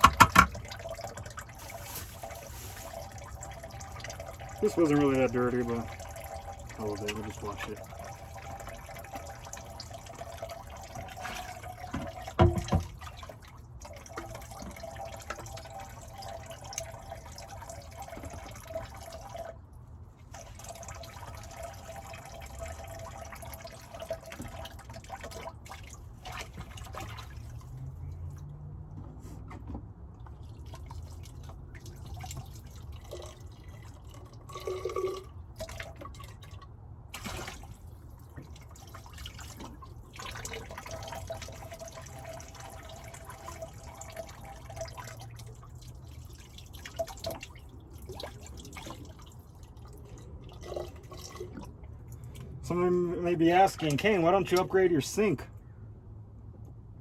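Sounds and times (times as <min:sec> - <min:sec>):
dish knocking: 0:00.0 - 0:00.6
water running into sink: 0:00.0 - 0:19.6
water dripping: 0:00.0 - 0:28.6, 0:30.2 - 0:54.8.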